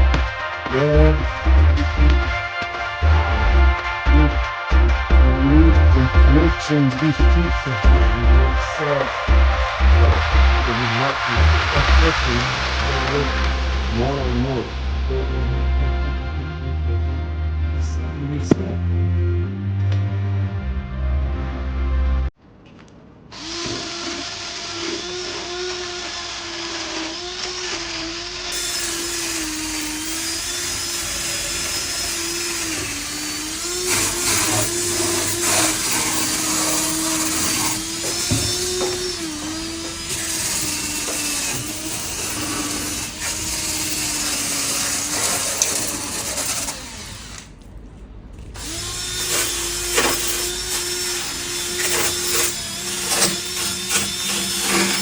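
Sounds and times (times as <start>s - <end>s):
power tool wire brush scraping metal: 23.6s - 47.6s, 48.6s - 55.0s.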